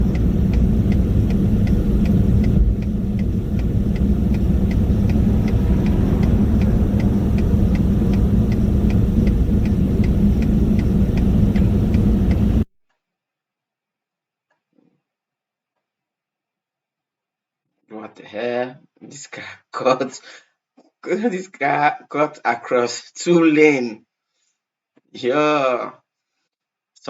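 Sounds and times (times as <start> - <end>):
light regular ticking: 0.0 - 12.6
vehicle rumbling: 0.0 - 12.7.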